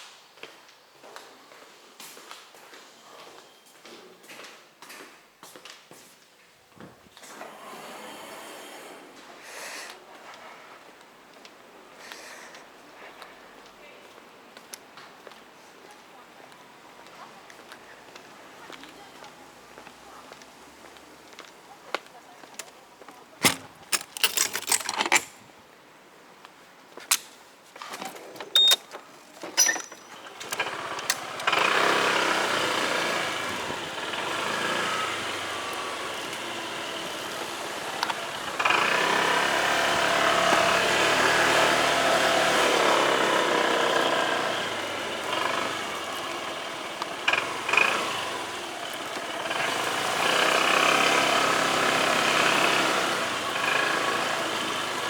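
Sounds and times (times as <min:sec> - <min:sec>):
road noise: 0:07.2 - 0:25.4, 0:29.3 - 0:55.0
clicks and knocks: 0:23.4 - 0:25.4
motorcycle engine running: 0:30.2 - 0:55.0.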